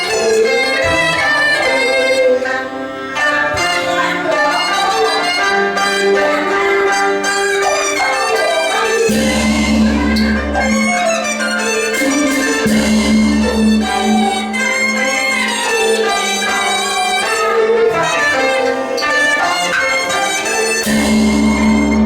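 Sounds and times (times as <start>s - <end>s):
bowed fiddle melody: 0.0s - 22.0s
opera instrumental ensemble: 0.0s - 22.0s
low held note: 12.0s - 14.6s.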